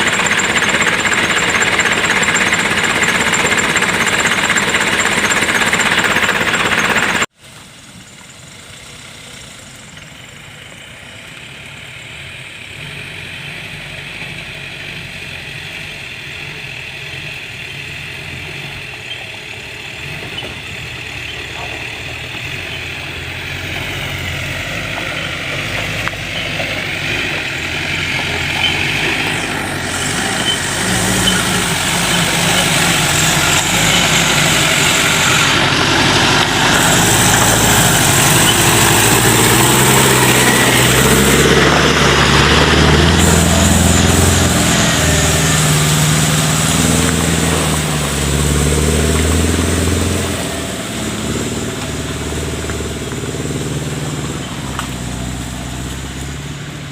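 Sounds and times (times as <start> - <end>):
vehicle engine revving: 0.0 - 7.3, 8.8 - 56.9.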